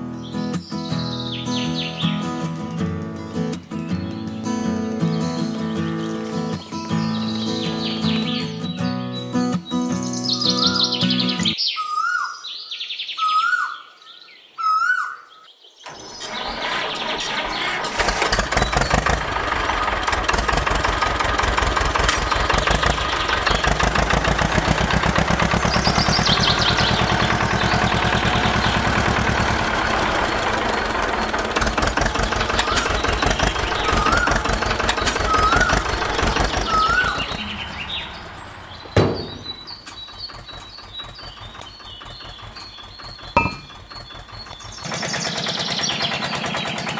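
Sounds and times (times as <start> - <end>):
birds chirping: 0.3 - 16.4, 32.2 - 45.9
small motor chattering: 2.1 - 8.6
sharp click: 2.2 - 8.4, 38.9 - 40.0.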